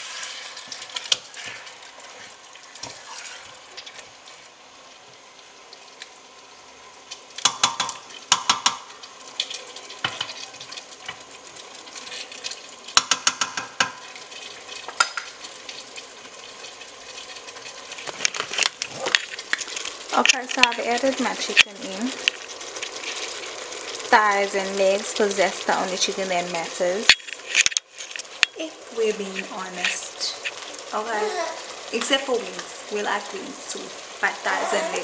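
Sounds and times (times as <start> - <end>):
wooden spoon scraping pot: 0.0 - 4.1, 34.2 - 35.0
chicken sizzling in pot: 0.0 - 35.0.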